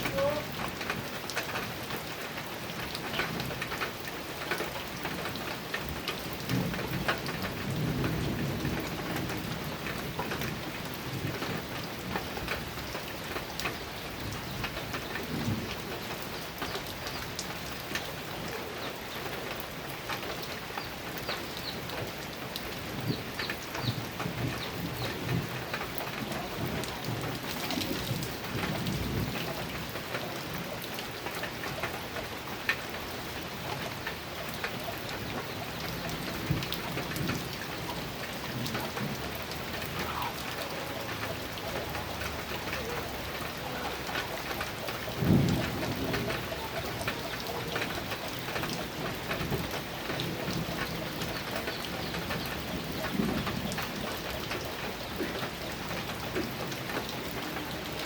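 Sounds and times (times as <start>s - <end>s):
heavy rain on a metal roof: 0.0s - 58.0s
thunder rolling: 24.0s - 30.7s, 44.5s - 54.1s.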